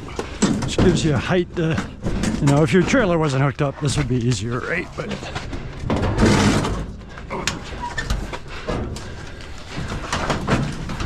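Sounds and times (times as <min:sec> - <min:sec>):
scrap knocks and clunks: 0:00.0 - 0:04.4, 0:05.0 - 0:11.0
scrap scraping into truck bed: 0:06.0 - 0:06.9.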